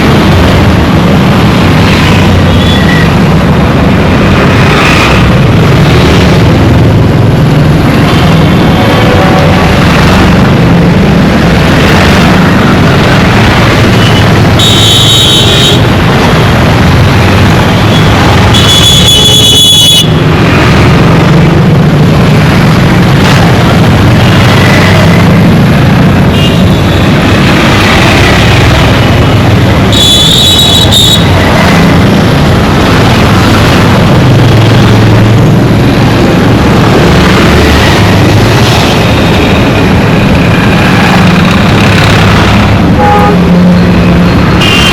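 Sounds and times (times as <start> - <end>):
street traffic: 0.0 - 44.9
vehicle horn blasts: 43.0 - 43.5.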